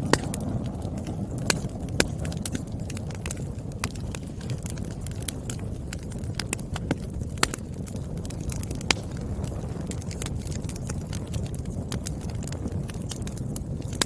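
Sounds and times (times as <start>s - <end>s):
firewood crackling and popping: 0.0s - 14.0s
wood fire roaring: 0.0s - 14.0s.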